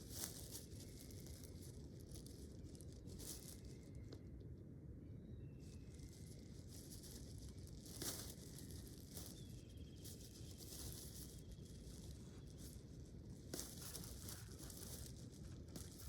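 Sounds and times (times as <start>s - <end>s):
crackling rustles: 0.0s - 4.3s, 5.6s - 16.0s.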